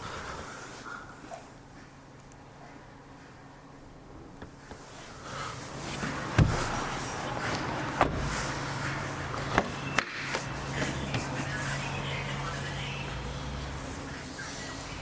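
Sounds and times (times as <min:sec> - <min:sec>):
steady low hum: 0:00.0 - 0:15.0
car door shutting: 0:05.9 - 0:08.7, 0:09.4 - 0:11.4.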